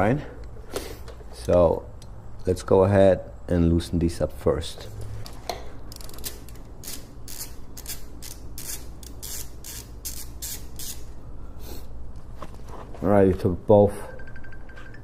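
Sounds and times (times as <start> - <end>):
socket ratchet clicking: 5.9 - 11.1.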